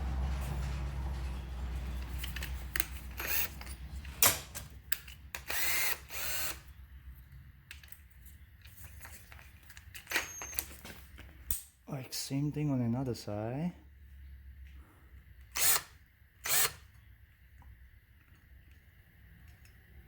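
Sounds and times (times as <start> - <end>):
drill motor hum: 2.0 - 4.0, 5.4 - 6.7, 15.5 - 16.8.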